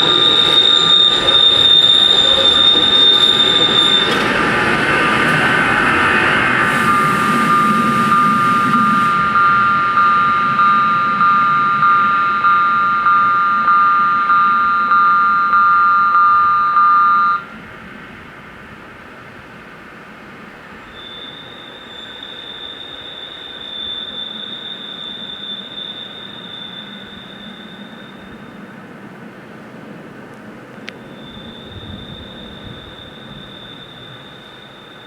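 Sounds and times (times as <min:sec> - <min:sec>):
level crossing bells ringing: 0:00.0 - 0:17.5
train running noise: 0:00.0 - 0:35.0
train wheels squealing on rails: 0:00.0 - 0:35.0.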